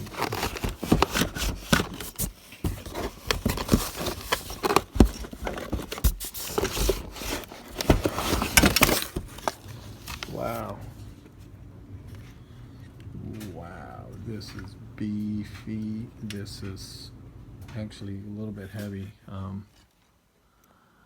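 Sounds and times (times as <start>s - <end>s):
box packaging rustling: 0.0s - 10.8s.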